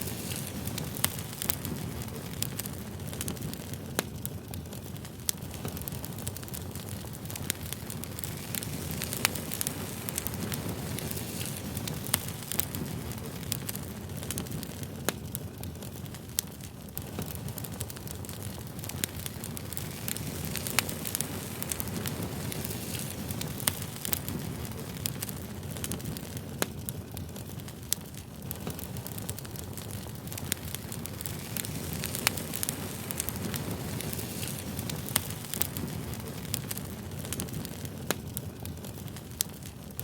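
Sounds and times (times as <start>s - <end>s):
burning wood crackling and popping: 0.0s - 40.0s
campfire flames rushing: 0.0s - 40.0s.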